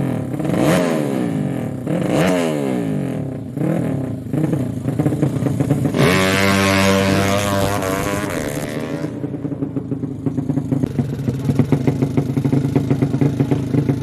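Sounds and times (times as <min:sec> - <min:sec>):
motorcycle engine revving and idling: 0:00.0 - 0:14.0
engine popping: 0:04.3 - 0:14.0.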